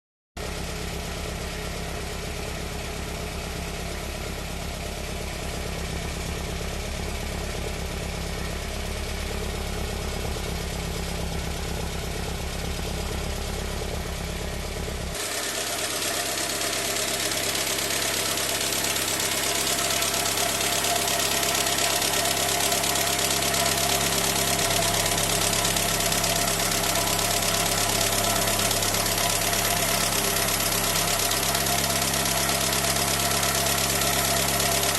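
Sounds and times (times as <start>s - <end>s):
car engine idling: 0.4s - 34.9s.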